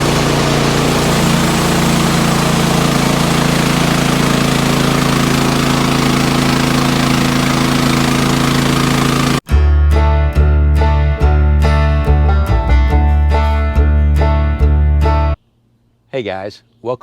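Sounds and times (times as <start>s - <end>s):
engine running steadily: 0.0s - 9.5s.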